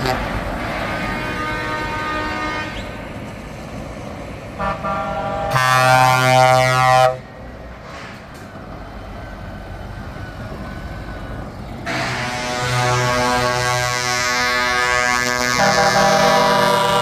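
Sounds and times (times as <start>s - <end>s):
truck air horn blasts: 0.0s - 3.0s, 4.6s - 7.3s, 11.8s - 17.0s
truck engine: 0.0s - 17.0s.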